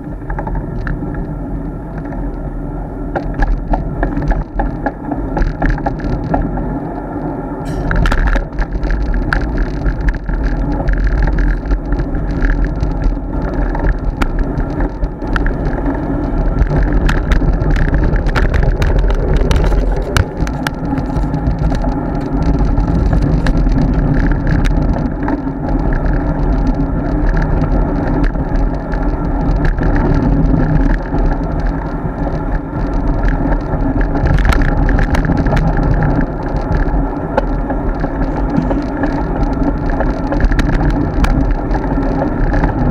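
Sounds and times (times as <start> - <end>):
bicycle clicks and rattles: 0.0 - 42.9
wind and road noise: 0.0 - 42.9.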